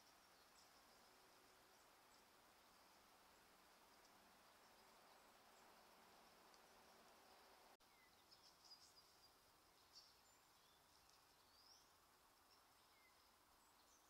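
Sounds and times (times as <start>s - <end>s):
faint high bird chirps: 3.9s - 14.0s.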